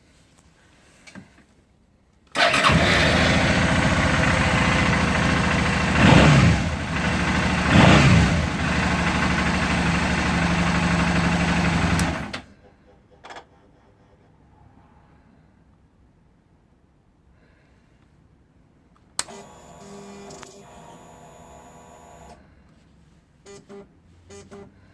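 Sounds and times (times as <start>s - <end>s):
motorcycle engine idling and revving: 2.4s - 12.4s.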